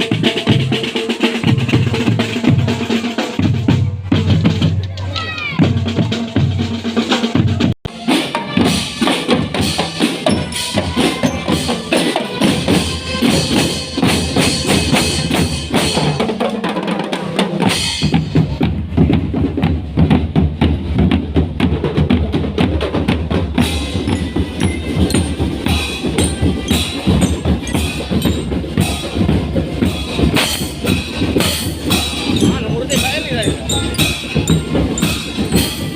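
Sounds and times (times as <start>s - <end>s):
snare and bass drums beating: 0.0s - 35.9s
pitched melodic notes: 23.6s - 35.9s.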